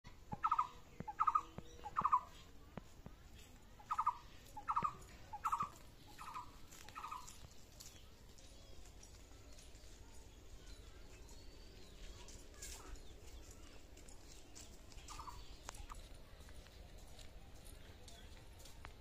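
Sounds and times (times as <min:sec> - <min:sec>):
bird calling: 0:00.3 - 0:02.6, 0:03.8 - 0:07.4, 0:14.6 - 0:16.0.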